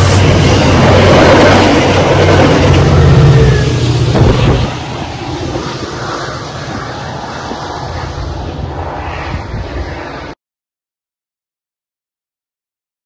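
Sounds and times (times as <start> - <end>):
train wheels rumbling on rails: 0.0 - 8.3.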